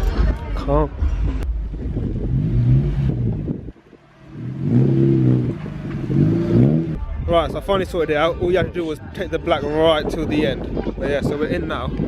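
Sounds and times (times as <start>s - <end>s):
car engine revving: 1.7s - 7.0s.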